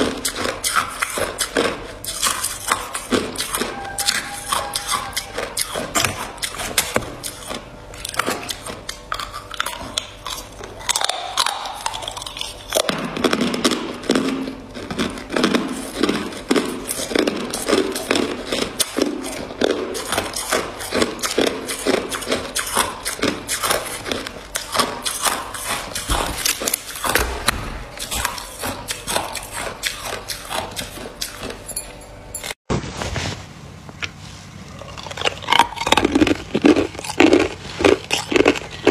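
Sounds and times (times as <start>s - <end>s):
ice being chewed: 0.0s - 32.6s, 34.0s - 38.9s.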